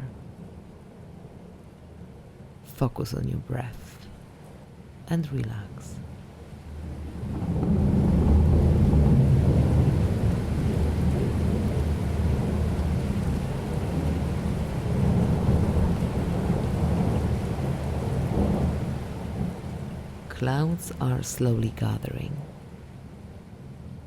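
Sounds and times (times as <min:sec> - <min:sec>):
steady rain: 0:00.0 - 0:24.0
rolling thunder: 0:06.8 - 0:20.3.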